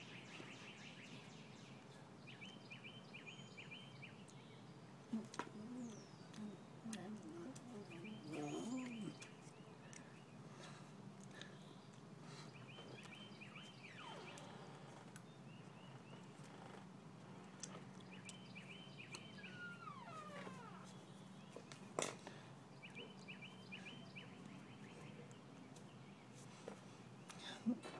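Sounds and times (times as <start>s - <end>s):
faint bird chirps: 0.0s - 10.4s, 11.4s - 27.7s.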